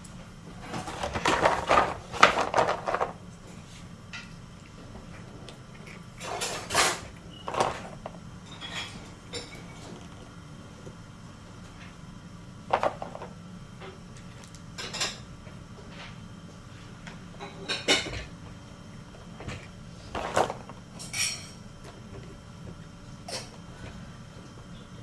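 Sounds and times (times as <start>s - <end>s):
hard objects clunking: 0.6s - 3.2s, 5.0s - 10.2s, 12.7s - 15.2s, 19.3s - 24.0s.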